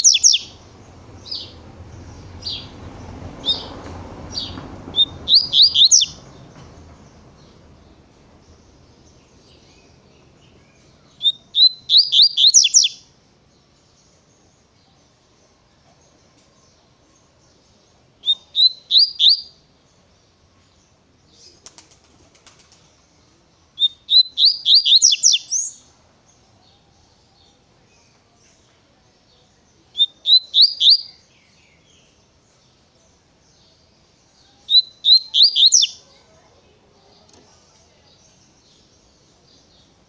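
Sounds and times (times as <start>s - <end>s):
bird singing high notes: 0.0s - 0.6s, 4.4s - 6.3s, 11.2s - 13.0s.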